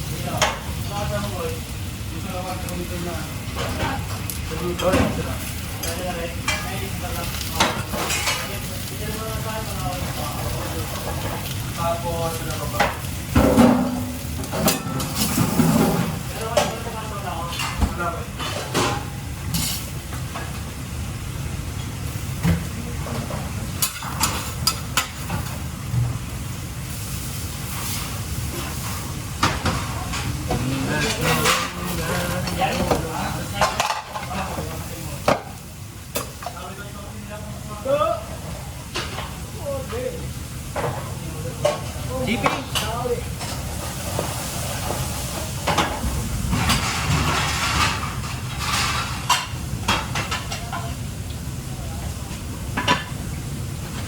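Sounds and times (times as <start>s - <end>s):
steady hum and hiss: 0.0s - 54.0s
utensils clinking on pans: 2.3s - 20.6s, 22.4s - 25.6s, 27.8s - 36.8s, 40.7s - 51.1s.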